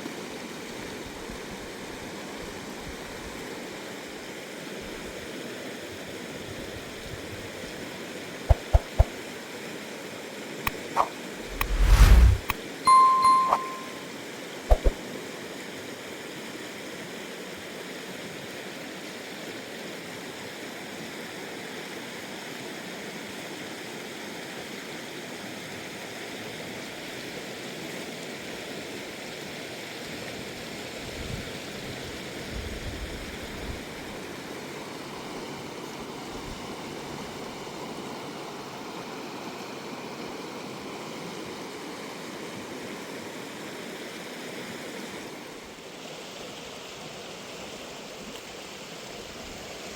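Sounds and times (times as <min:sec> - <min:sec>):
dull low bumps: 0:11.4 - 0:12.5.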